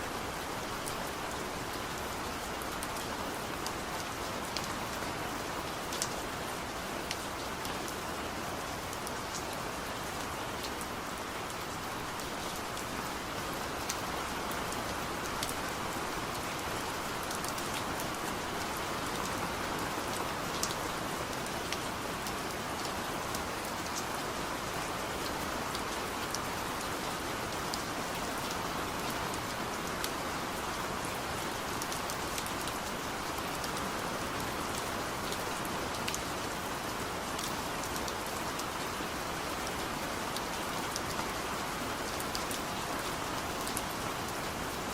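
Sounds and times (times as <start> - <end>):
heavy rain: 0.0 - 44.9.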